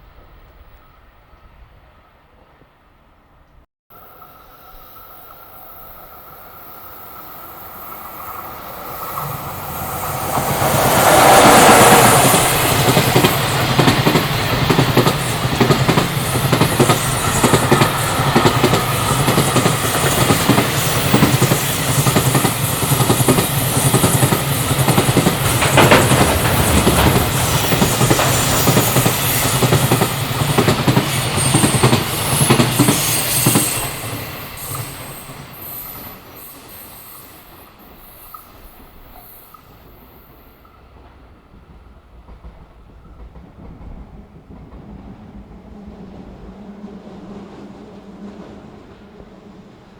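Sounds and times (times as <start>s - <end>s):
locomotive passing: 4.0s - 49.9s
wheels clattering over rail joints: 10.2s - 34.0s.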